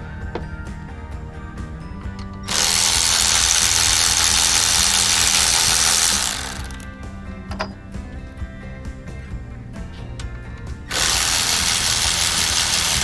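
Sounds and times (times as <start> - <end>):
background music: 0.0 - 13.0
loud steady hiss: 2.5 - 6.8, 10.9 - 13.0.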